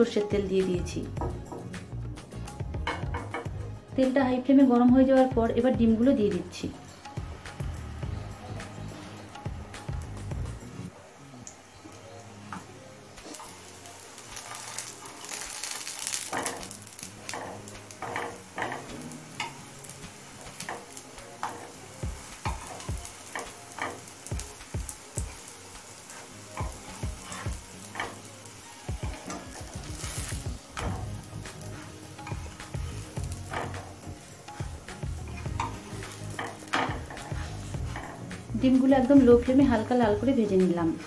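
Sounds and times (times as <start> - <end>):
food sizzling in oil: 0.0 - 41.0
steel spatula clicking and scraping: 14.2 - 28.3, 29.0 - 38.5.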